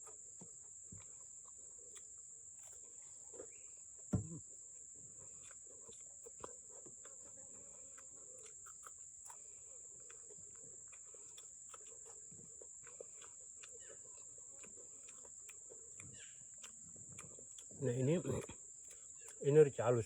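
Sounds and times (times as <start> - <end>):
cricket trilling: 0.0 - 20.0.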